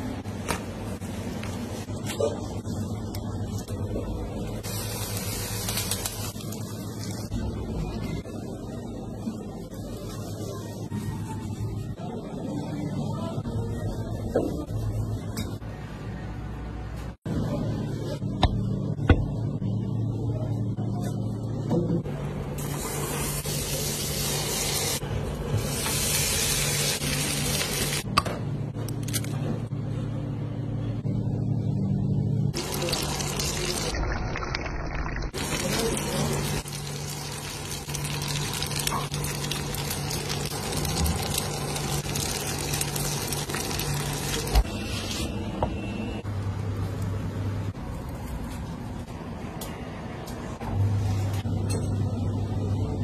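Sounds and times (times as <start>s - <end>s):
food sizzling in a frying pan: 4.6s - 7.3s, 25.6s - 28.0s, 32.6s - 34.0s, 35.4s - 44.6s.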